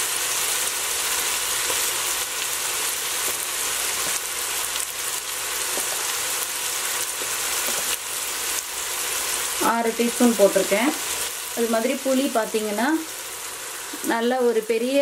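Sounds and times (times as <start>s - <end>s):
onions frying in oil: 0.0s - 15.0s.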